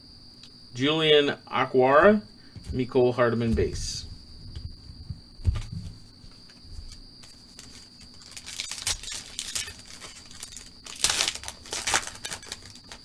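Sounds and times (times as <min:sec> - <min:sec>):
faint high hum: 0:00.0 - 0:13.0
card stock clicks and rustles: 0:06.4 - 0:13.0
trading cards flipping: 0:06.4 - 0:13.0.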